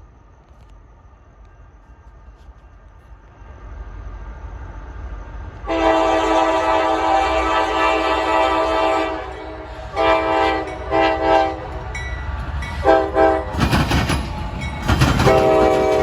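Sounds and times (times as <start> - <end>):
freight locomotives rumbling: 0.0 - 16.0
locomotive air horn chord: 5.6 - 11.8, 12.8 - 13.6, 15.2 - 16.0.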